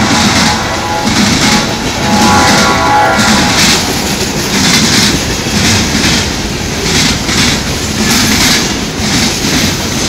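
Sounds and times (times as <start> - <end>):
train wheels clattering on rails: 0.0 - 10.0.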